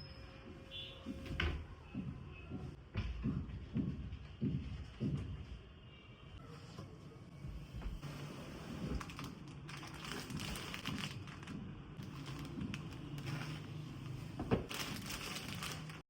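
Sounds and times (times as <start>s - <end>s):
objects rustling and clicking: 8.7s - 16.0s.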